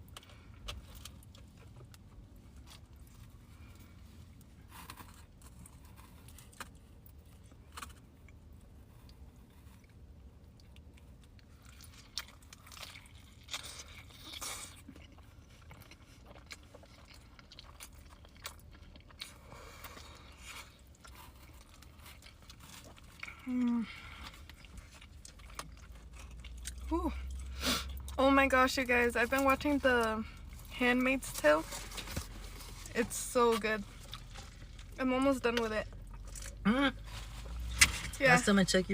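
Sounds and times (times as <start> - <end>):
chewing pizza: 0.0 - 38.4.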